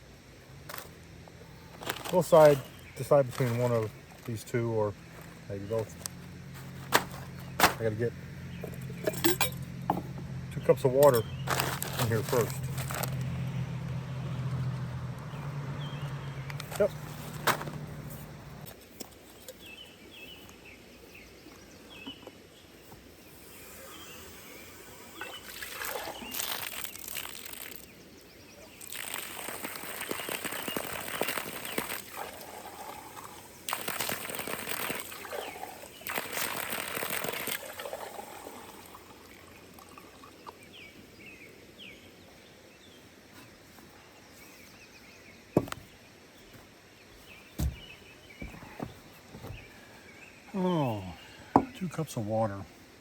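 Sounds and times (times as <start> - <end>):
water pouring: 25.2 - 27.9, 28.8 - 40.6.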